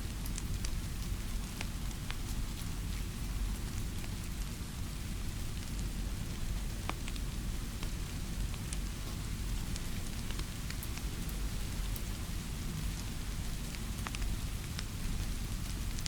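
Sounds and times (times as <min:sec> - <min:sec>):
steady rainfall: 0:00.0 - 0:16.0
raindrops ticking: 0:00.1 - 0:02.4, 0:06.6 - 0:12.1, 0:12.9 - 0:16.0.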